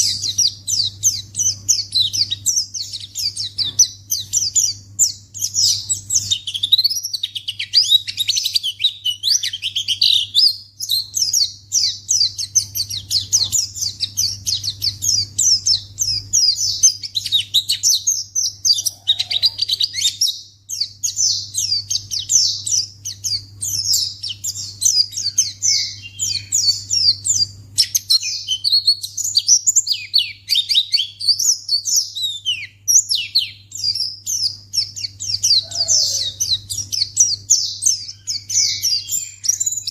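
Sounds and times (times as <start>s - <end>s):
bird chirping and twittering: 0.0s - 39.9s
steady low hum: 0.0s - 39.9s.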